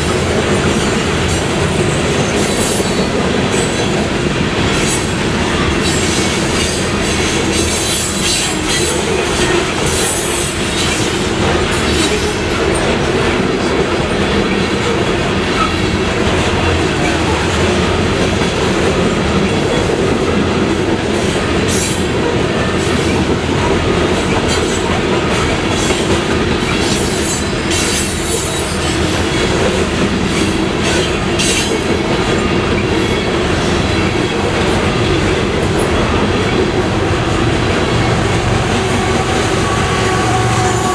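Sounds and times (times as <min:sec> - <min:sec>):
train wheels rumbling on rails: 0:00.0 - 0:40.9
high wheel squeals: 0:26.7 - 0:29.0.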